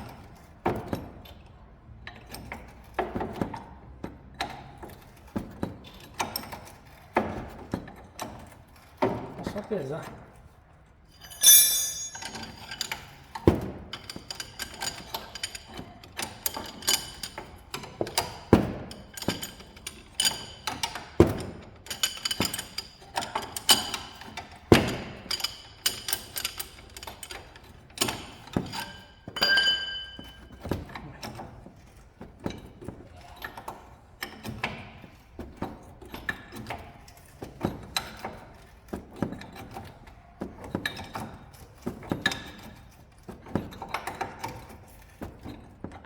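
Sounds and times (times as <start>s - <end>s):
metallic tool clinks: 11.2s - 12.8s.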